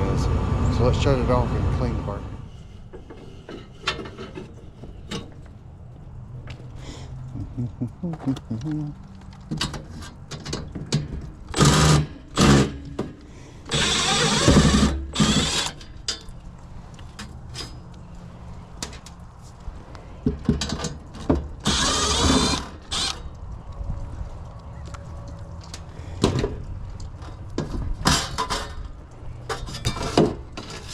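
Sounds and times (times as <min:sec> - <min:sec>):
cordless drill removing screws: 0:11.5 - 0:13.0, 0:13.7 - 0:16.0, 0:21.6 - 0:23.3.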